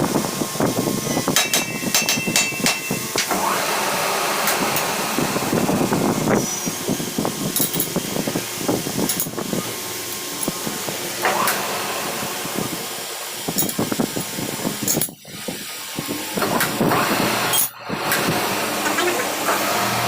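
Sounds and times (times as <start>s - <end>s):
steady mechanical hum: 0.0s - 20.0s
sharp metallic clinks and knocks: 7.6s - 8.0s.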